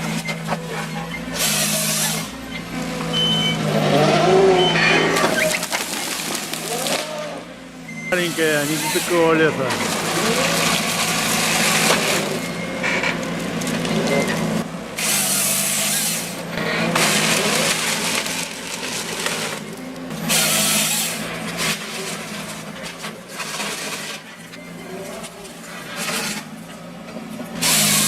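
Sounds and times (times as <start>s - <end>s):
harvester engine and hydraulics: 0.0s - 28.0s
harvester head sawing trunks: 0.0s - 28.0s.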